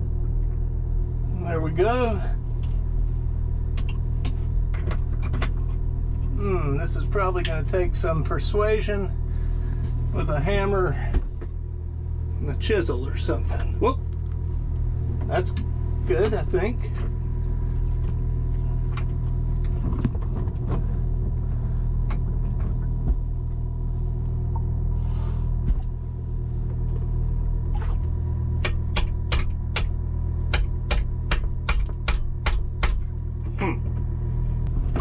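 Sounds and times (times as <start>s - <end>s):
steady low drone: 0.0s - 35.0s
hammer striking chisel: 28.6s - 29.9s, 30.5s - 33.1s.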